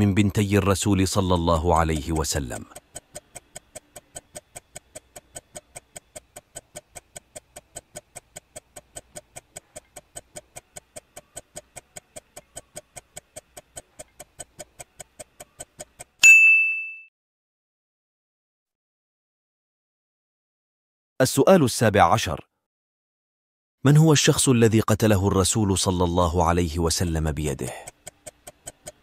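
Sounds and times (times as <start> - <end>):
timer ticking: 0.6 - 16.2, 26.3 - 29.0
bell-like ding: 16.2 - 17.1.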